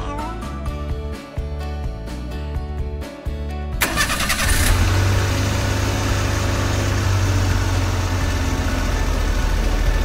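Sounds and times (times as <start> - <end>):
recorded car engine idling: 3.8 - 10.0.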